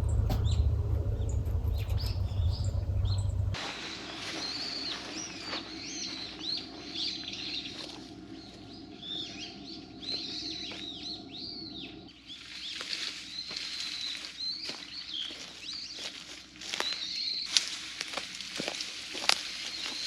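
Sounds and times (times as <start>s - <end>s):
low steady hum: 0.0s - 3.6s
small birds chirping: 0.0s - 20.0s.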